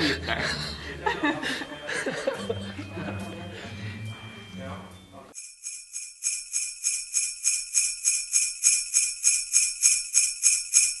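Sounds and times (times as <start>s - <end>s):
sleigh bells shaken: 5.4s - 11.0s.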